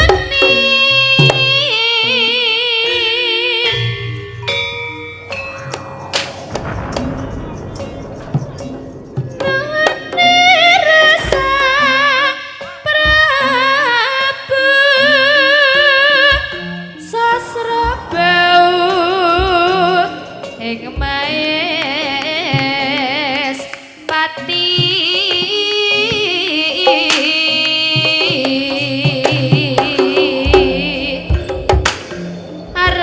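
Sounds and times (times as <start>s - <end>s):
wavering vibrato melody: 1.8s - 13.9s
drum strokes: 5.2s - 13.6s, 24.8s - 33.0s.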